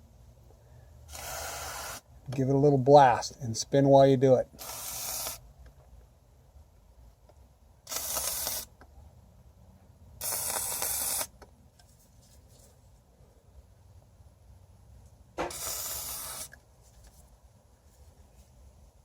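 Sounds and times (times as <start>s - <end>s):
aerosol can hissing: 1.1s - 2.0s, 4.6s - 5.4s, 7.9s - 8.7s, 10.2s - 11.4s, 15.4s - 16.6s.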